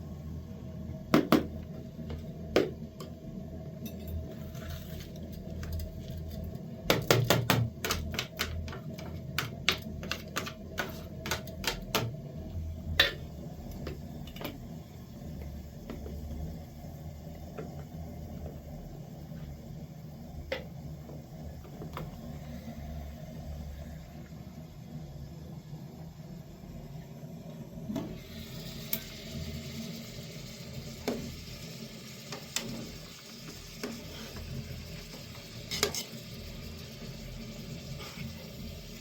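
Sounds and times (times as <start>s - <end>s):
low steady hum: 7.7s - 33.0s.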